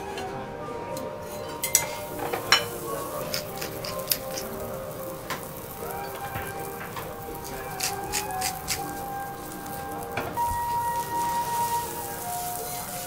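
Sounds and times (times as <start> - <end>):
foie gras sizzling on a griddle: 1.2 - 13.0
metal spatulas clinking on hot plate: 1.6 - 10.2.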